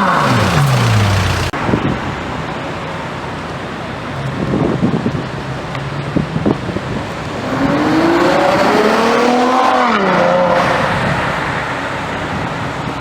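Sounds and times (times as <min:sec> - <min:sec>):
sports car accelerating hard: 0:00.0 - 0:01.6, 0:07.0 - 0:12.2.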